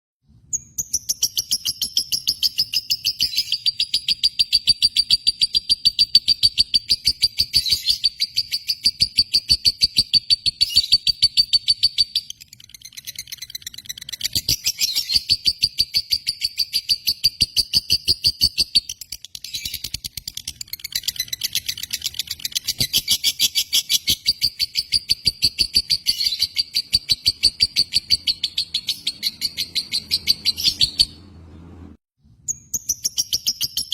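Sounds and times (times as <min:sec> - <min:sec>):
lovebird rapid high chirping: 0:00.5 - 0:31.3, 0:32.5 - 0:33.9.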